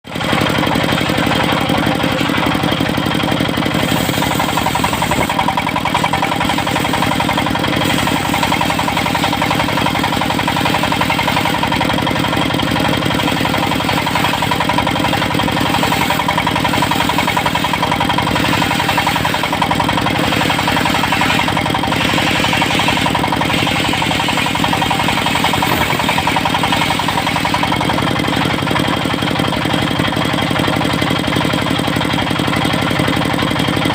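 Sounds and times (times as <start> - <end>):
sawmill engine running: 0.0 - 33.9.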